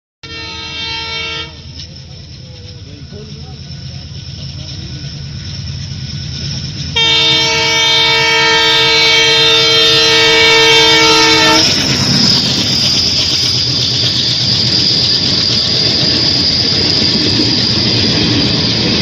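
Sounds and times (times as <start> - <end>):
train horn blast: 0.2 - 1.7, 7.0 - 11.9
clatter of passing train cars: 0.2 - 19.0
train rumbling: 0.2 - 19.0.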